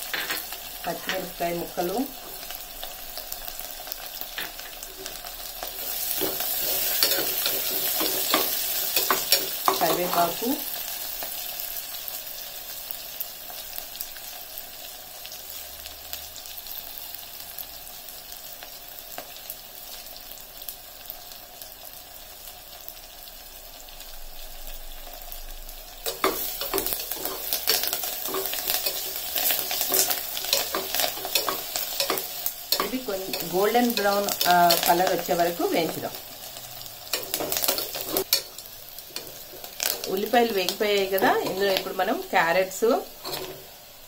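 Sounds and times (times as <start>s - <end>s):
vegetables sizzling in oil: 0.0s - 44.0s
spoon scraping a pot: 43.2s - 43.6s.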